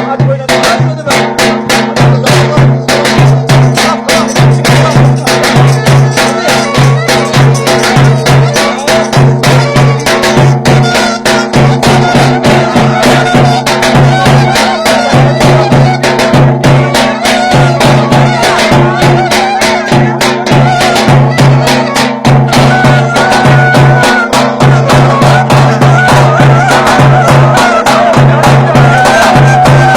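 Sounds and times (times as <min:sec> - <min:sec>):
fast drum beat: 0:00.0 - 0:29.9
folk dance tune: 0:00.0 - 0:29.9.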